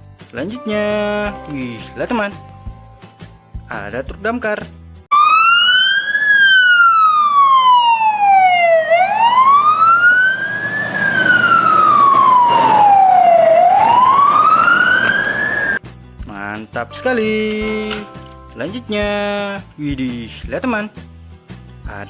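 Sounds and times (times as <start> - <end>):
fire truck siren wailing: 5.1 - 15.8.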